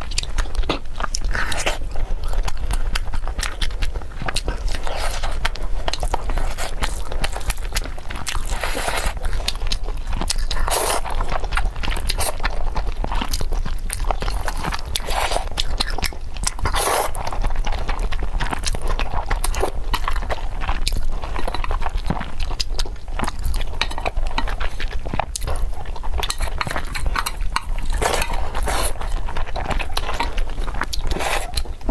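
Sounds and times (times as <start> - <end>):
person chewing crunchy food: 0.0 - 31.9
wet mouth noises: 25.2 - 31.9.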